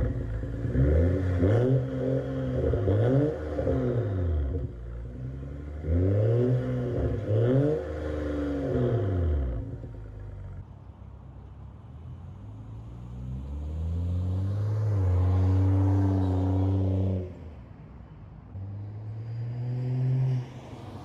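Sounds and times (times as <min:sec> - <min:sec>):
car exhaust under throttle: 0:00.0 - 0:10.6.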